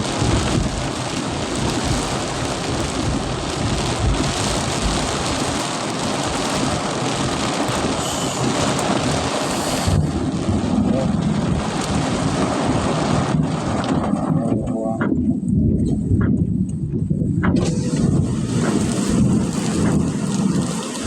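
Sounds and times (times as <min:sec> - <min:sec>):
heavy rain pouring: 0:00.0 - 0:16.2, 0:17.4 - 0:21.0
low rumble: 0:07.8 - 0:21.0.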